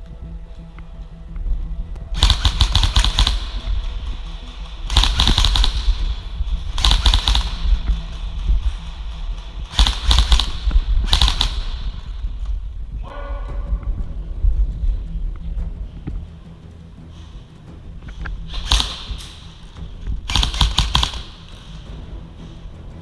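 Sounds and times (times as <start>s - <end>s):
airsoft rifle full-auto bursts: 2.2s - 3.7s, 4.8s - 7.8s, 9.7s - 12.2s, 18.6s - 19.2s, 20.3s - 21.5s.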